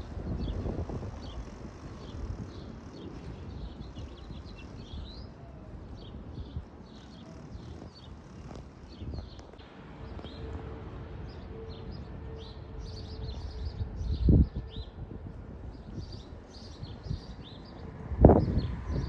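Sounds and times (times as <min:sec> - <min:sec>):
small birds chirping: 0:00.0 - 0:15.0, 0:15.6 - 0:19.0
distant jet engine rumble: 0:00.0 - 0:19.0
wind gust on microphone: 0:00.0 - 0:19.0.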